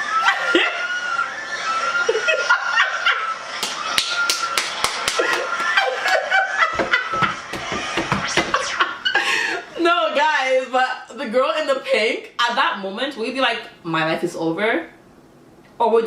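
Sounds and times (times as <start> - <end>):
laughter: 0.0 - 4.0, 4.8 - 9.8.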